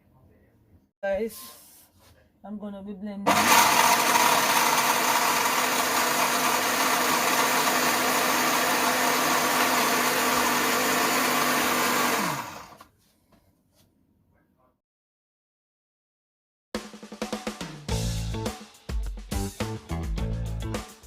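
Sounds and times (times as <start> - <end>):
blender motor winding down: 3.3 - 12.8
electric blender running: 3.3 - 12.8.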